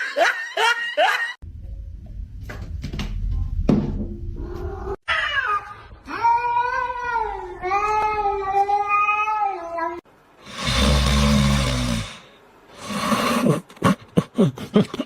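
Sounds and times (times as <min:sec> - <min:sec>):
low rumble: 0:01.4 - 0:05.0.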